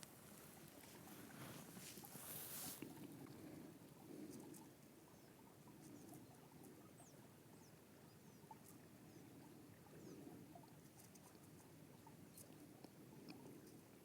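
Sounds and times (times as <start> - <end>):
faint outdoor ambience: 0.0 - 14.0.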